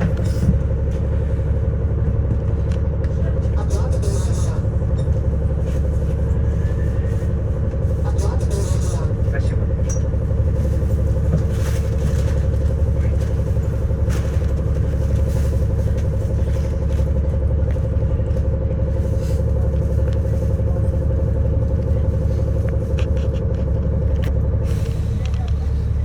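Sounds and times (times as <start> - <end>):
bus engine hum: 0.0 - 26.0.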